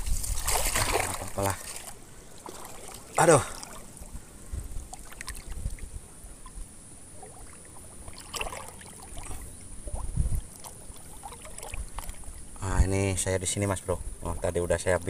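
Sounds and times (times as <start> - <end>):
wind buffeting microphone: 0.0 - 1.7, 4.0 - 6.6, 9.2 - 10.6.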